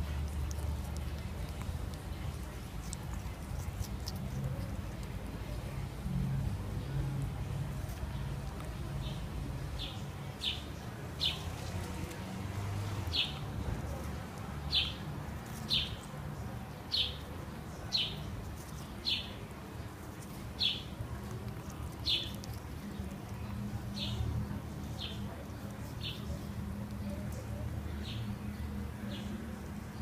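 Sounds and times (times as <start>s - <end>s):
low steady rumble: 0.0s - 10.3s.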